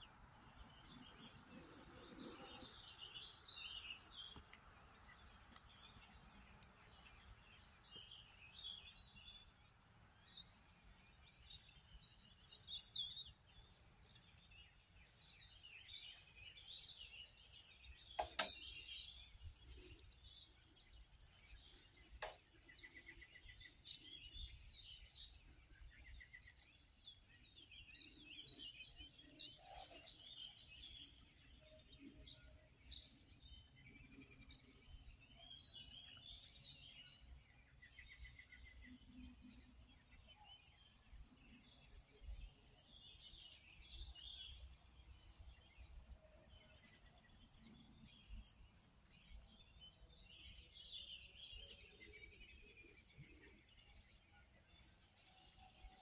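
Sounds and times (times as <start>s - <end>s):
faint songbirds chirping: 0.0s - 56.0s
sharp clicks: 18.2s - 18.7s.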